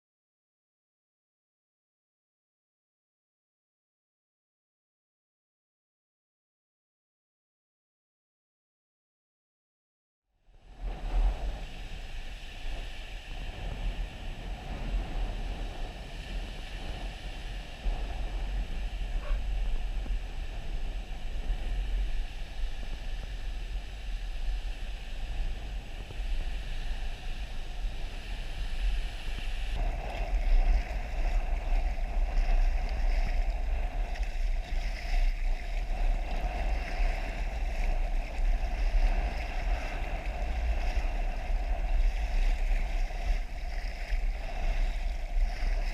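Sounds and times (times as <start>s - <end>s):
sea water washing around kayak: 10.6s - 45.9s
wind buffeting microphone: 10.6s - 45.9s.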